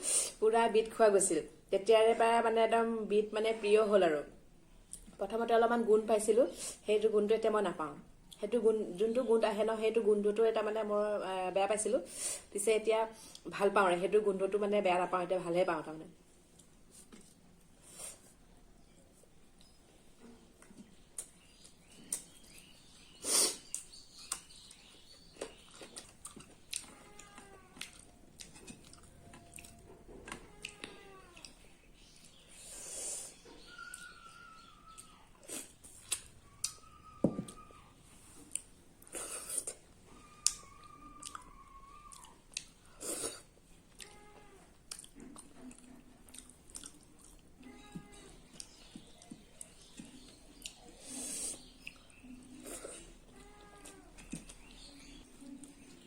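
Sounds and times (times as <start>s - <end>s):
chewing and wet mouth clicks: 23.7s - 29.8s, 30.6s - 31.6s, 34.9s - 36.8s, 40.4s - 42.8s, 44.8s - 47.5s, 48.5s - 50.9s, 51.6s - 52.9s.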